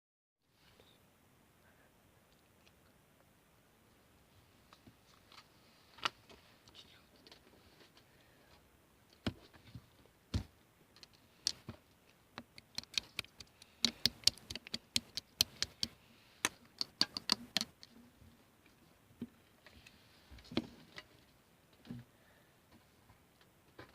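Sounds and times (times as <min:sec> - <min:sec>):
sharp clicks and taps: 0:11.0 - 0:18.0.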